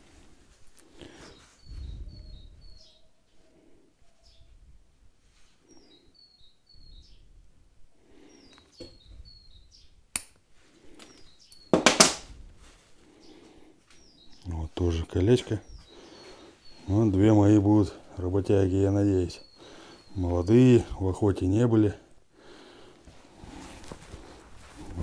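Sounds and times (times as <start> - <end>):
small bird chirping: 1.0 - 4.6, 5.5 - 7.4, 8.0 - 10.2, 10.8 - 11.8, 13.1 - 21.0
soft handling sounds: 22.9 - 25.0.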